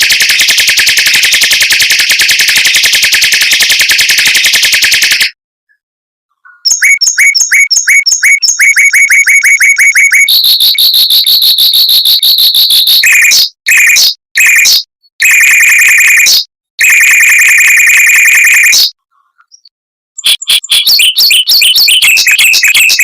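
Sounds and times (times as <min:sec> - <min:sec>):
mockingbird singing: 0:06.3 - 0:11.3, 0:18.6 - 0:23.0.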